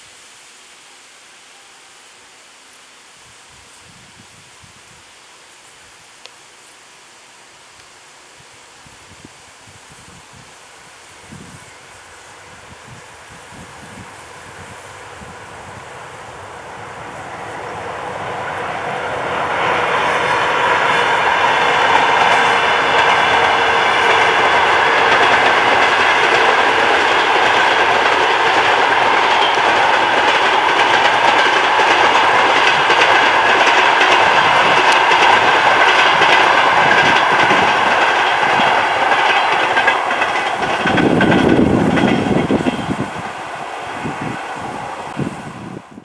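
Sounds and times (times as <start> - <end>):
train wheels rushing on rails: 8.3 - 46.0
clickety-clack over rail joints: 20.2 - 43.3.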